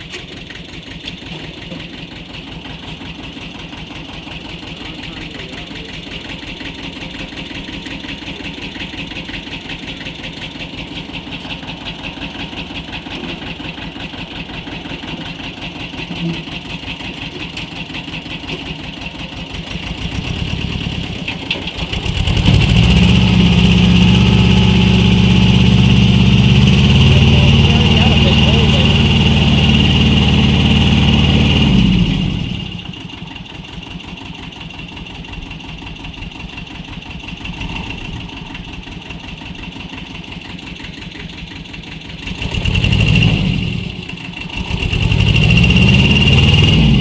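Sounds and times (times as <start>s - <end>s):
tractor engine revving: 19.5s - 33.5s, 37.0s - 40.5s, 42.1s - 47.0s.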